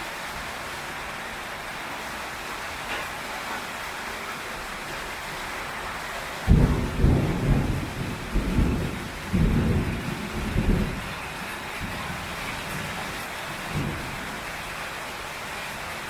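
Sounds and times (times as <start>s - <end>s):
rain on a tin roof: 0.0s - 16.0s
thunder rumbling: 6.5s - 12.7s, 13.6s - 14.3s.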